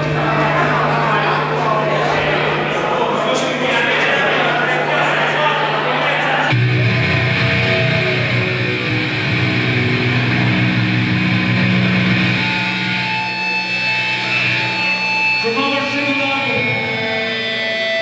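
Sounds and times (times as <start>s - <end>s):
distorted electric guitar: 6.5s - 18.0s.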